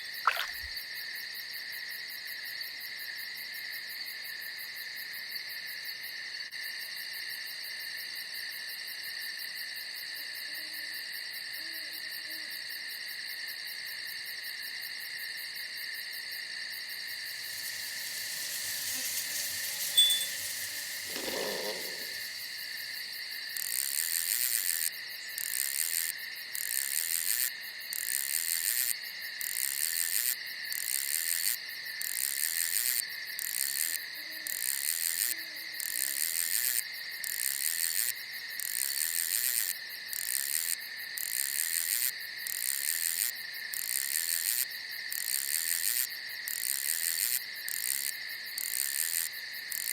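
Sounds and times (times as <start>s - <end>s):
high insect chirping: 0.0s - 0.8s, 16.2s - 28.7s, 35.8s - 49.9s
crickets trilling: 0.0s - 4.9s, 8.3s - 49.9s.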